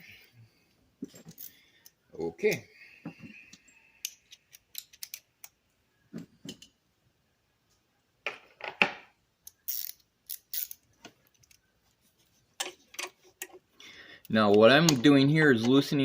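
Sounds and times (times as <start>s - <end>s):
wrenches clicking on metal: 9.5s - 11.6s.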